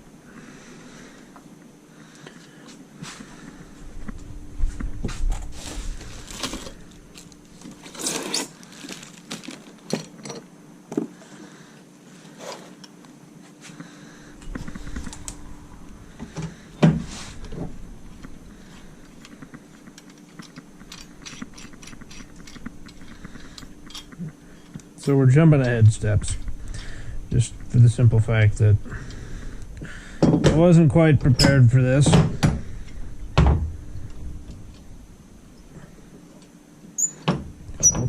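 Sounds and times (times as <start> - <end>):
tools and parts rattling: 5.3 - 10.5, 19.0 - 25.2
scrape: 17.0 - 17.4.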